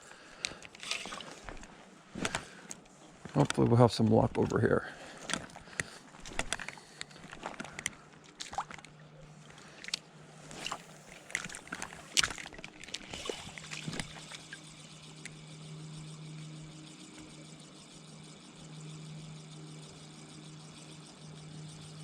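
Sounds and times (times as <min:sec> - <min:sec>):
low steady hum: 0:00.0 - 0:22.0
creek water splashing: 0:00.8 - 0:01.6, 0:08.4 - 0:14.5.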